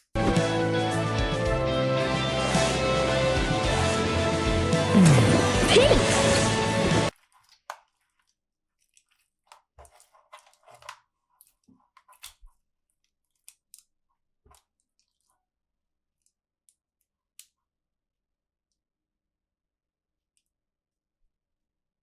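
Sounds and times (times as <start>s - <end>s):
loud music: 0.0s - 7.1s
toy packaging clicks and crinkles: 7.1s - 13.9s.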